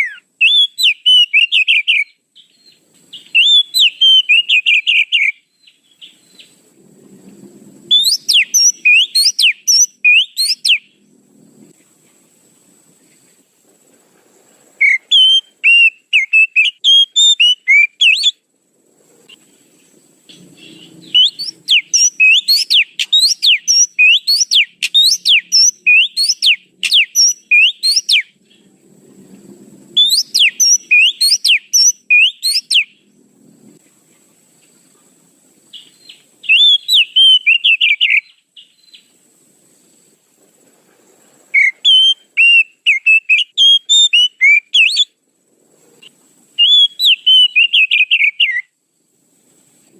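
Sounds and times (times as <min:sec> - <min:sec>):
bird whistling song: 0:00.0 - 0:06.6, 0:07.9 - 0:11.0, 0:14.8 - 0:18.4, 0:19.3 - 0:28.7, 0:29.9 - 0:33.1, 0:35.7 - 0:39.1, 0:41.5 - 0:45.2, 0:46.6 - 0:48.8.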